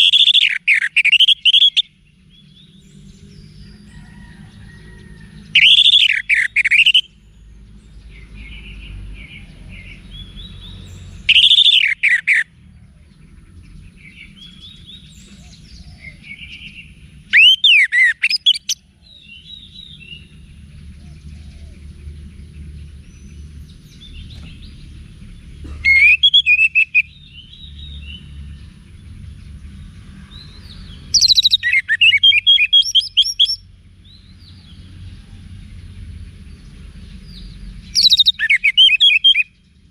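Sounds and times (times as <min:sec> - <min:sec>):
thrush whistling song: 0:00.0 - 0:02.5, 0:05.5 - 0:07.2, 0:10.2 - 0:12.5, 0:14.0 - 0:20.3, 0:25.8 - 0:28.2, 0:31.1 - 0:33.7, 0:37.8 - 0:39.6
faint bird chirps: 0:03.9 - 0:07.2, 0:08.1 - 0:20.3, 0:25.6 - 0:28.2, 0:31.1 - 0:33.6, 0:37.9 - 0:39.6.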